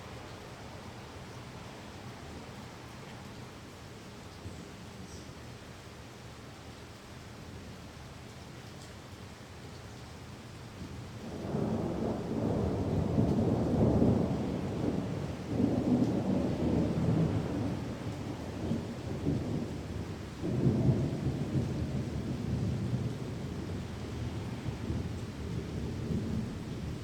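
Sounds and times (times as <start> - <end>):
steady rain: 0.0 - 27.0
rolling thunder: 11.3 - 27.0.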